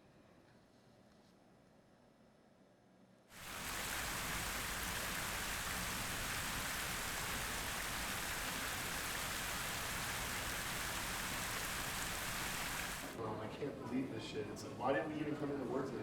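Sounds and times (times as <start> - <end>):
steady even hiss: 3.3 - 13.2.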